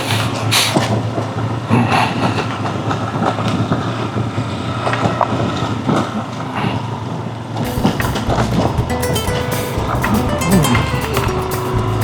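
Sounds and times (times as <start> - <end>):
motorcycle engine running slowly: 7.7 - 12.0.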